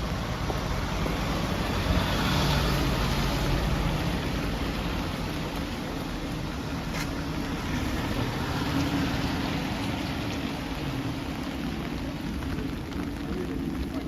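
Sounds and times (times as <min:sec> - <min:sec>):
rain on wet street: 0:00.0 - 0:14.0
vehicle engine humming: 0:00.0 - 0:14.0.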